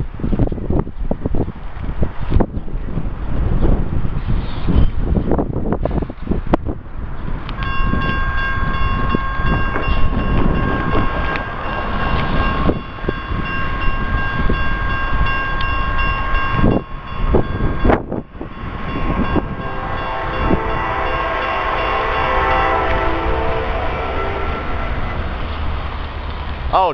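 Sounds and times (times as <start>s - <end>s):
train rumbling: 0.0s - 26.9s
locomotive air horn blast: 19.0s - 25.7s.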